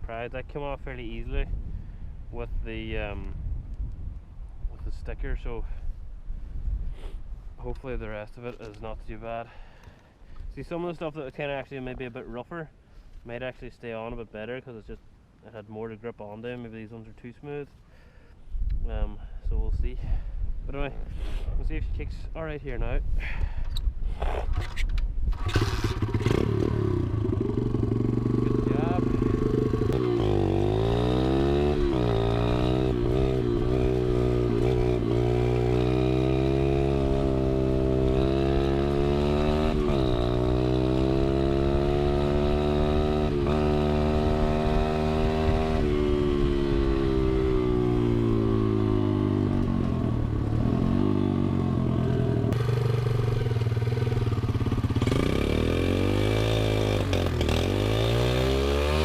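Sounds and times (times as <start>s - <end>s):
pit bike engine revving: 25.4s - 59.0s.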